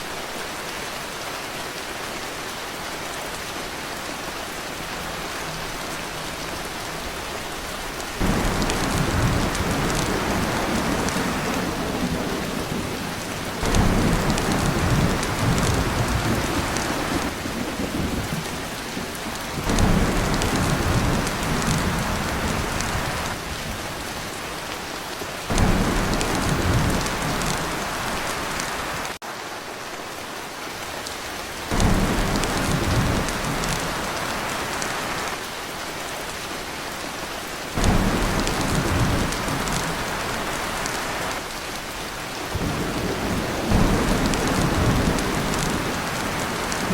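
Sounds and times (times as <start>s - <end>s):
heavy rain on a tin roof: 0.0s - 46.9s
thunder rumbling: 7.9s - 24.1s, 25.5s - 29.2s, 31.7s - 35.3s, 37.8s - 41.4s, 42.4s - 46.9s.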